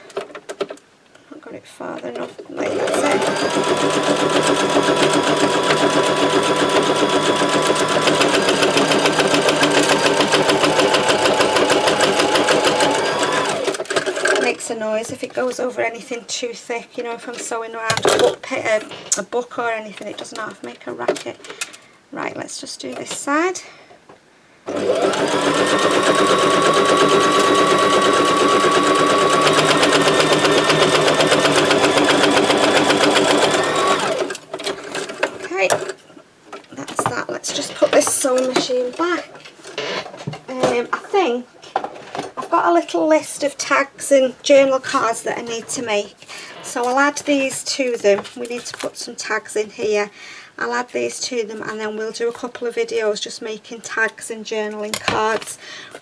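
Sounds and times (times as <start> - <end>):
sewing machine stitching: 2.6 - 14.6, 24.7 - 35.2.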